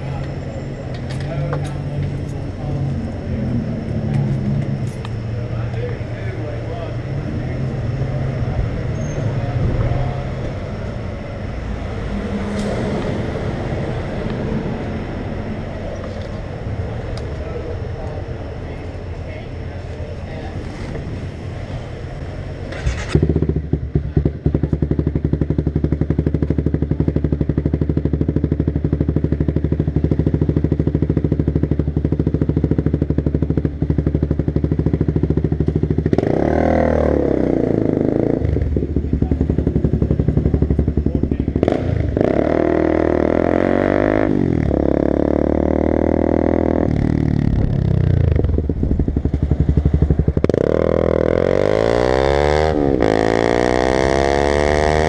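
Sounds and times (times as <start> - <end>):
motorcycle engine revving and accelerating: 20.7 - 55.0.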